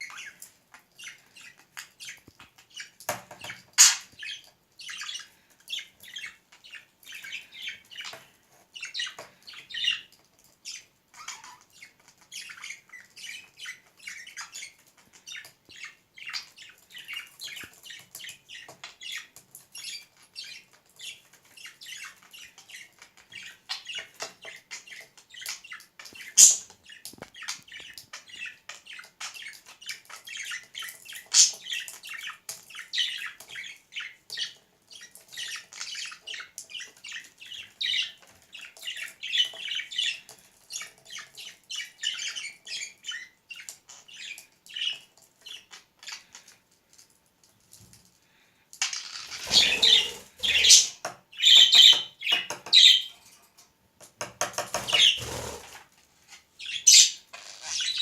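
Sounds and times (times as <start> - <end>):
sharp bird calls: 48.9 - 53.1, 54.8 - 55.7
budgerigar warbling and chattering: 49.1 - 52.0.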